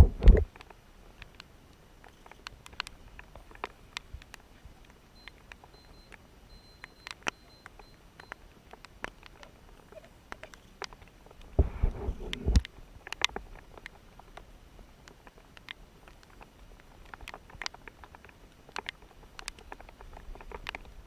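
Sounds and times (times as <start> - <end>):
low rumble on microphone: 0.0 - 0.5, 11.5 - 12.8
raindrops tapping: 0.0 - 21.0
faint high electronic beeping: 5.1 - 8.5.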